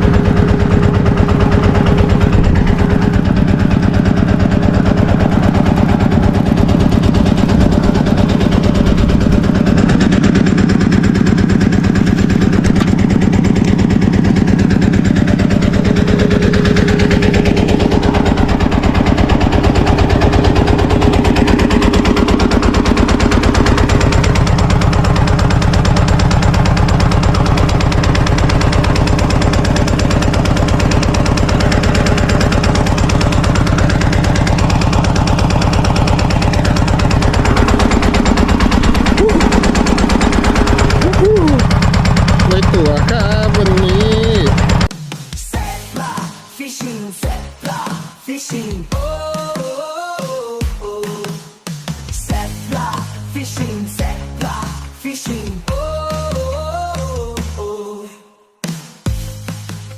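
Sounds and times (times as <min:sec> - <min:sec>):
engine running: 0:00.0 - 0:46.4, 0:47.2 - 0:47.9, 0:52.0 - 0:57.7.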